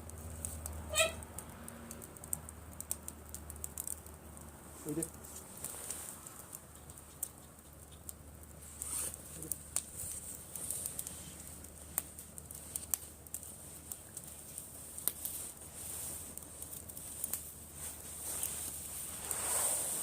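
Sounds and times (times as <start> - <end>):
bonfire crackling: 0.0 - 20.0
faint steady hiss: 0.0 - 20.0.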